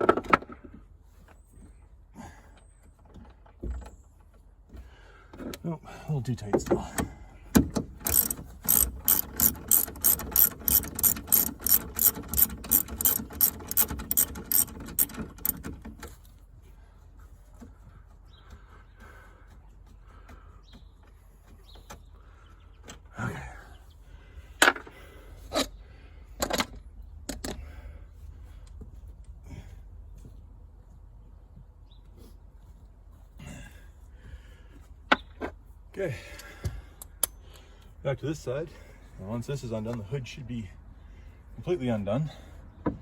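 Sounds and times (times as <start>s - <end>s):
ratchet wrench clicking: 8.0s - 16.2s.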